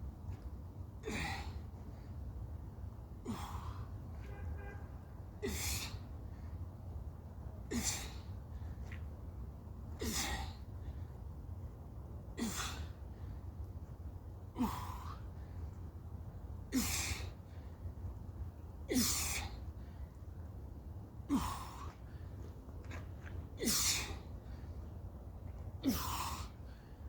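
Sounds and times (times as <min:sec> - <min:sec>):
steady low rumble: 0:00.0 - 0:27.0
man's forceful exhalations with grunts: 0:01.0 - 0:01.6, 0:03.2 - 0:03.9, 0:05.4 - 0:06.0, 0:07.7 - 0:08.3, 0:10.0 - 0:10.6, 0:12.4 - 0:13.0, 0:14.6 - 0:15.2, 0:16.7 - 0:17.3, 0:18.9 - 0:19.6, 0:21.3 - 0:22.0, 0:23.6 - 0:24.2, 0:25.8 - 0:26.8.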